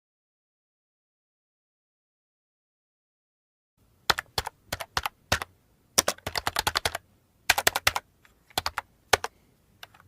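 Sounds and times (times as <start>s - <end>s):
keyboard typing clicks: 4.1s - 10.0s.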